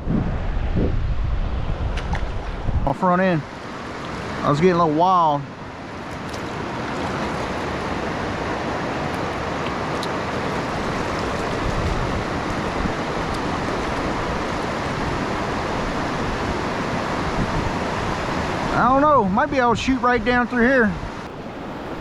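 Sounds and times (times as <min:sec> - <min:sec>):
rushing river rapids: 0:03.0 - 0:22.0.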